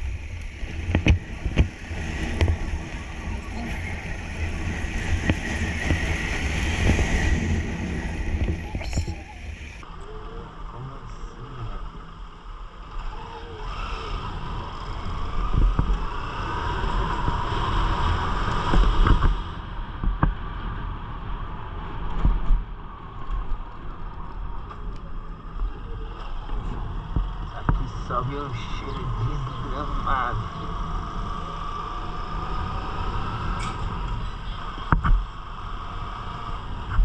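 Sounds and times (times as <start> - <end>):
motorcycle engine running: 0.0 - 9.8
wind buffeting microphone: 0.0 - 9.9.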